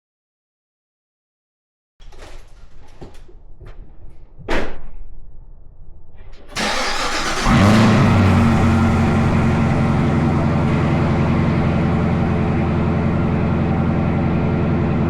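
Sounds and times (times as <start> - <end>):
starter cranking: 6.5 - 11.1
car engine flaring and idling: 6.5 - 15.0.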